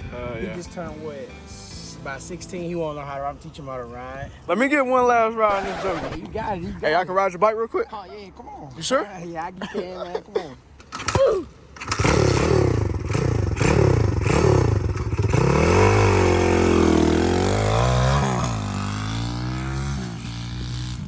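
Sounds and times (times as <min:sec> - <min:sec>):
dirt bike engine revving: 0:05.5 - 0:06.2, 0:11.8 - 0:21.0.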